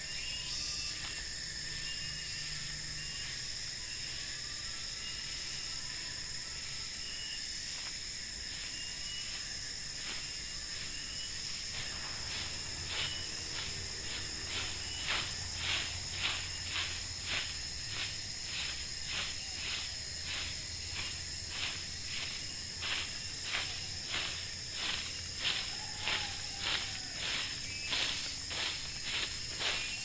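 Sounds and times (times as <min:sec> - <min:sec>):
insects ringing and chirping: 0:00.0 - 0:30.0
rustling crunches: 0:09.1 - 0:30.0.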